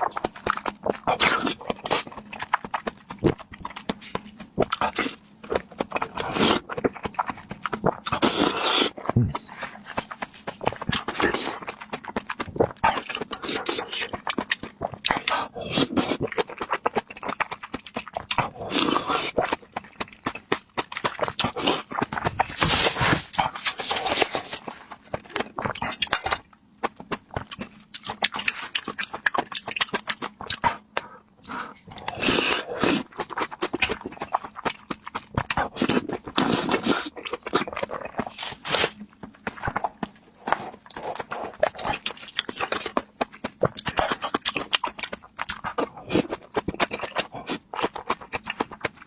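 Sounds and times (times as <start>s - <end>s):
chewing: 0.0s - 49.0s
slurping: 0.2s - 26.4s.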